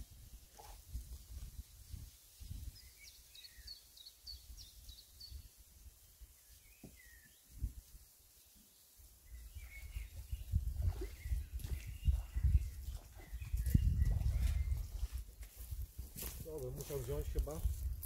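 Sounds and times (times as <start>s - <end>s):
birds singing and chirping: 2.5s - 7.7s, 9.2s - 18.0s
low bird calls: 9.3s - 15.2s.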